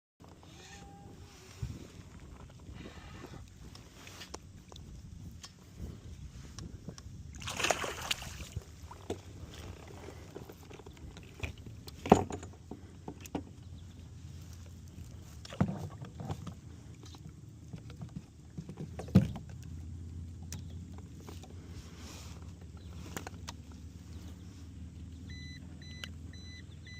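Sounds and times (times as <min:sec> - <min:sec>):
low steady rumble: 0:00.2 - 0:26.9
water splashing: 0:07.3 - 0:10.0.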